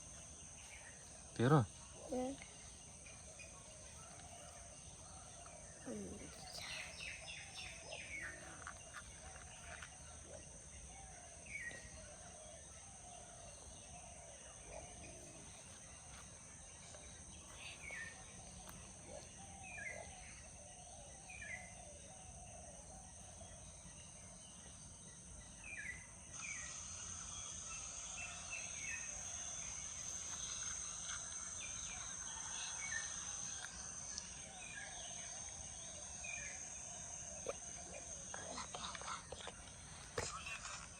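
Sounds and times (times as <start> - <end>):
birds chirping: 0.0 - 22.4, 23.2 - 40.9
high-pitched insect drone: 25.6 - 40.9.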